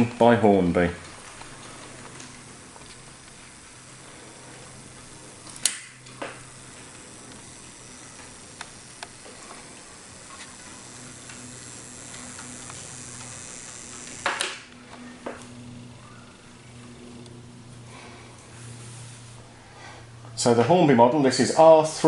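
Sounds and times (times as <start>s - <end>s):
steady low hum: 0.0s - 22.0s
steam hissing burst: 18.6s - 19.4s.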